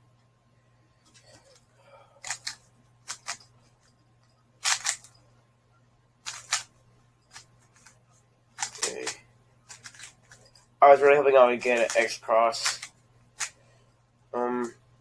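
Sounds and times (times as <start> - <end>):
speed cube plastic clacks: 2.2 - 3.4, 4.6 - 5.1, 6.2 - 6.7, 7.3 - 10.4, 11.6 - 13.6.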